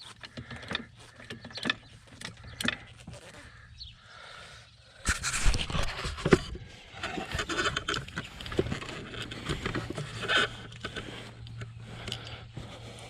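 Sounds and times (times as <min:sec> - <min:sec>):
scraping: 0:05.0 - 0:13.0.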